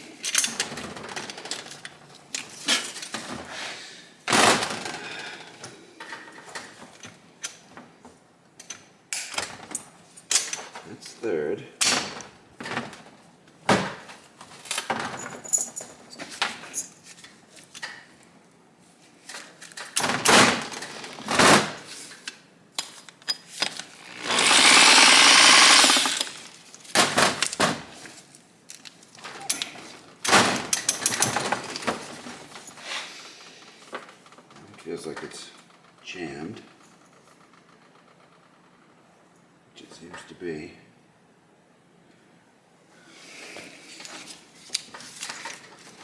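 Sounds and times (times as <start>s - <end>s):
loud metal rattling: 23.9s - 26.6s.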